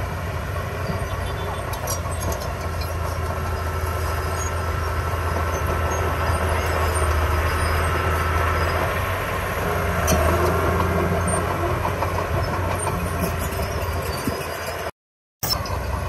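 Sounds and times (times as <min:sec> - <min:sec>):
heavy machinery diesel engine: 0:00.0 - 0:16.0.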